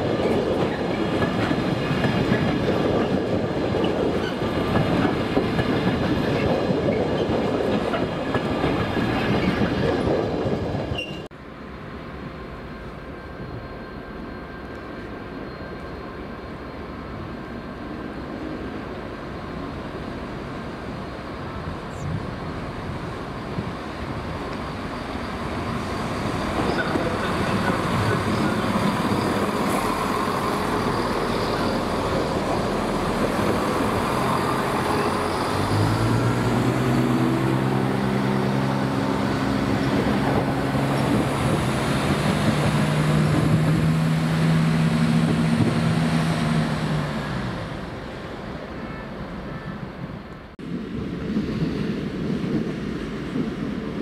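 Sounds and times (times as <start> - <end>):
rail and train noise: 0.0 - 54.0.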